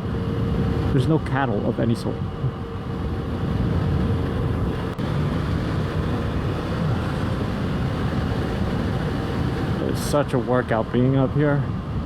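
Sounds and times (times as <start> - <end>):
wind rushing over microphone: 0.0 - 12.0
motorcycle engine running: 3.3 - 10.0.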